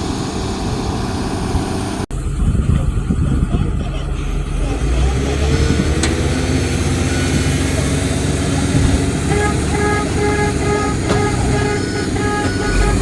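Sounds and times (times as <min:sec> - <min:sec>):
diesel engine running: 0:00.0 - 0:13.0
short beeps: 0:10.2 - 0:13.0.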